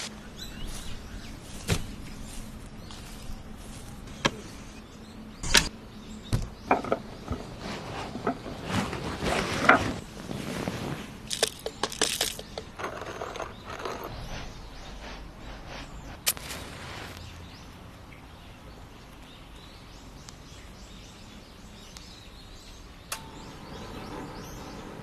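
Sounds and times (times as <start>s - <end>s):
hard objects knocking and clattering: 6.4s - 7.5s, 11.3s - 14.1s.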